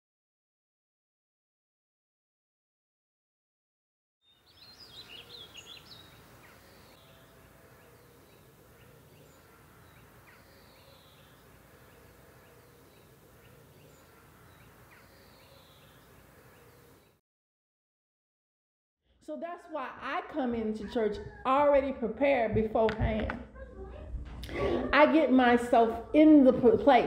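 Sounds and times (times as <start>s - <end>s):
faint birds chirping: 4.2s - 17.2s
outdoor ambience: 4.3s - 17.2s.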